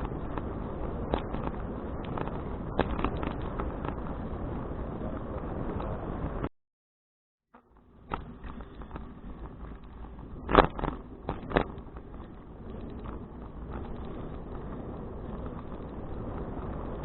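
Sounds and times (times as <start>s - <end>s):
wind and road noise: 0.0s - 6.5s, 7.6s - 17.0s
sharp knocks and rattles: 7.9s - 14.7s.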